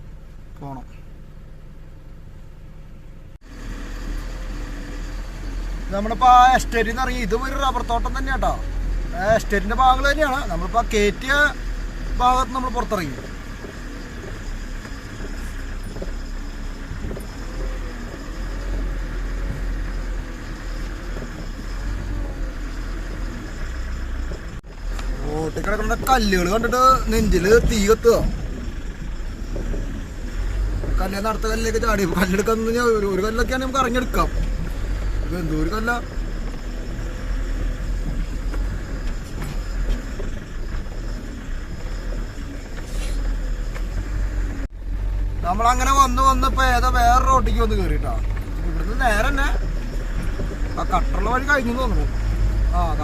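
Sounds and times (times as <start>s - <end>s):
diesel truck engine rumbling: 0.0s - 53.0s
knocks and rattles: 46.4s - 53.0s.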